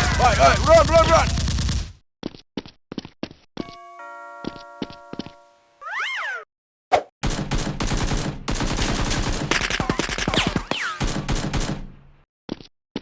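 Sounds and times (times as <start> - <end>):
automatic gunfire: 7.2 - 11.9.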